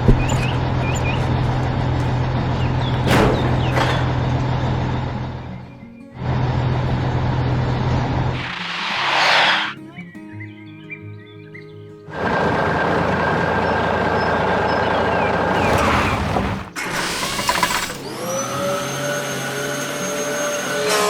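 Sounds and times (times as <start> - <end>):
motor whining: 15.5 - 19.0
loud steady motor: 16.4 - 20.7.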